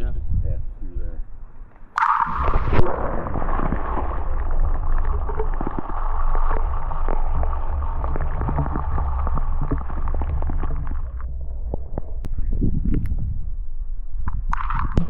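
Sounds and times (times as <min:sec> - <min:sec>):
wind buffeting microphone: 0:00.0 - 0:01.5, 0:10.4 - 0:15.0.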